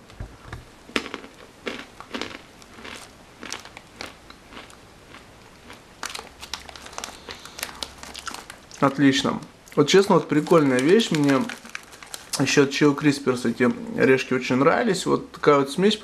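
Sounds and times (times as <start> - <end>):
crunching peanut snack: 0.9 - 9.0, 9.7 - 12.5.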